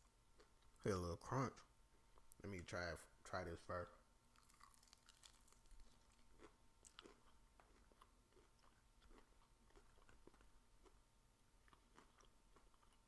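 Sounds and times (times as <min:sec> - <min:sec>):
crunching fried chicken: 0:04.3 - 0:11.0, 0:11.6 - 0:13.0.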